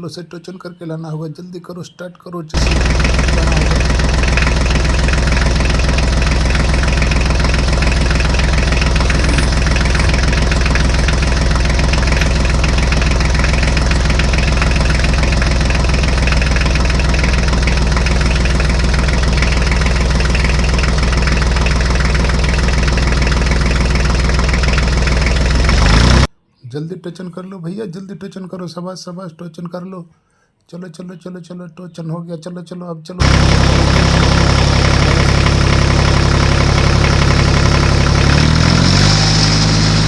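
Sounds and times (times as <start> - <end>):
diesel tractor engine idling: 2.6 - 26.3, 33.2 - 40.0.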